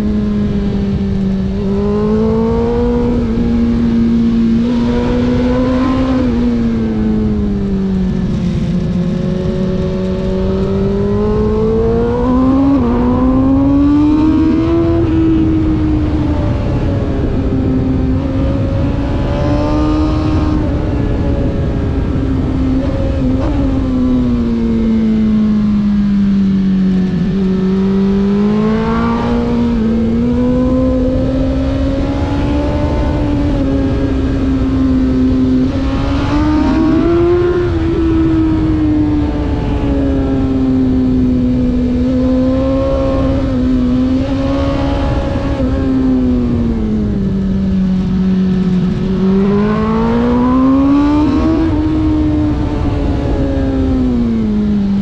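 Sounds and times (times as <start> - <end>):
road and wind noise: 0.0 - 55.0
race car engine revving hard: 18.1 - 21.8, 27.0 - 34.8, 35.4 - 40.6, 48.9 - 53.8.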